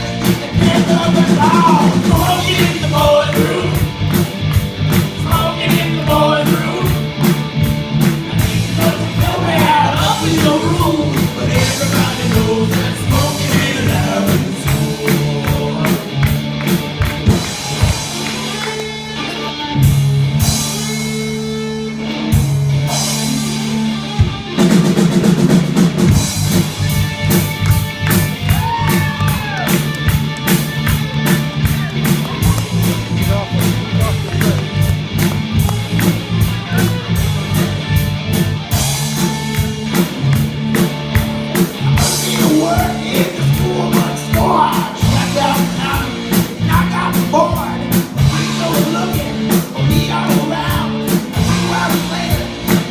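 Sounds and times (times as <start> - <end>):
live rock band playing: 0.0 - 52.9
person singing: 0.4 - 3.9, 5.1 - 7.0, 8.7 - 16.1, 42.1 - 52.9.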